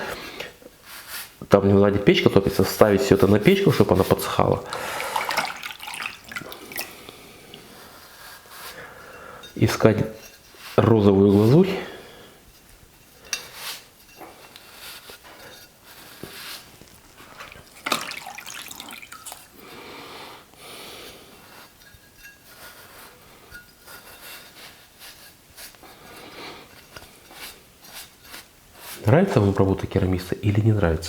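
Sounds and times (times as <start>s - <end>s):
wet rubbing: 2.6s - 8.8s, 15.9s - 19.6s.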